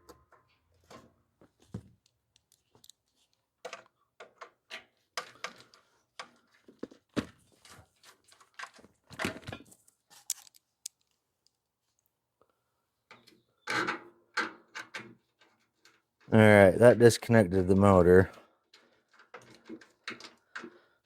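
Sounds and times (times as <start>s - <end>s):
parts clicking and rattling: 0.0s - 6.6s, 8.2s - 11.6s.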